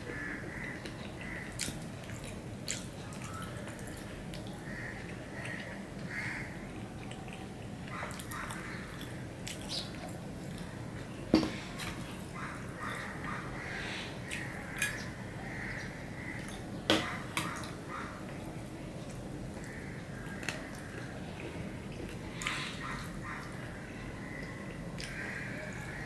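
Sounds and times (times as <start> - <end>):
wet chewing and lip smacks: 0.8 - 5.7.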